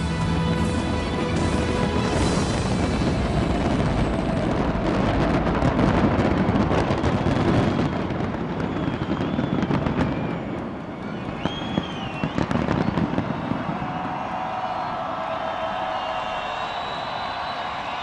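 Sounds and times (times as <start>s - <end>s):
fireworks booming and crackling: 0.0s - 18.0s
fireworks whistling: 1.2s - 18.0s.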